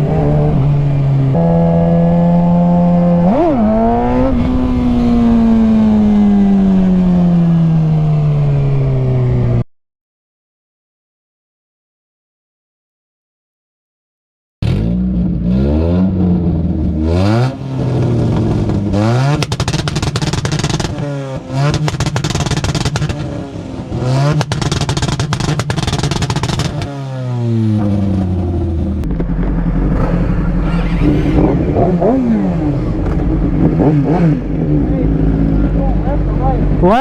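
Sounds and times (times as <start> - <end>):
vehicle engine revving: 0.0 - 9.6, 14.6 - 37.0
exhaust crackling: 14.6 - 37.0.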